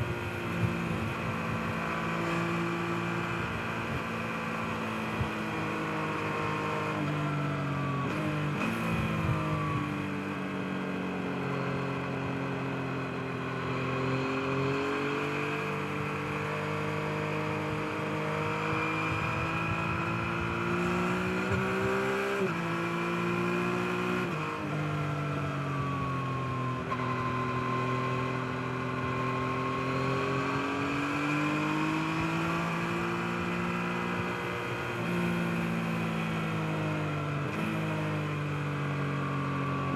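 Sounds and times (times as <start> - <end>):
motorcycle engine revving: 7.8 - 9.8, 14.0 - 25.4.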